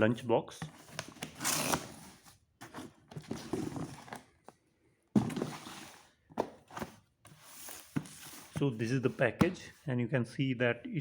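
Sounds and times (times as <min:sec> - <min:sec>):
cardboard box rustling and scraping: 0:00.8 - 0:04.3, 0:05.2 - 0:09.3.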